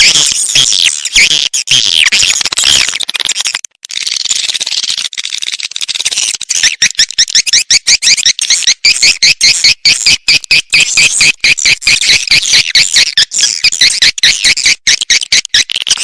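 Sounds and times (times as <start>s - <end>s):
swiftlets chirping and twittering: 0.0s - 16.0s.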